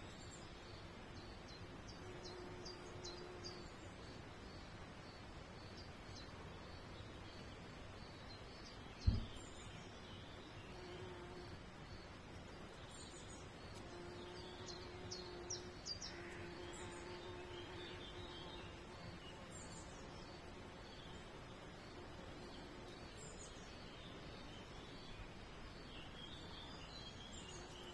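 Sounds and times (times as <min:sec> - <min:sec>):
small birds chirping: 0:00.0 - 0:27.9
low thump: 0:09.0 - 0:09.5.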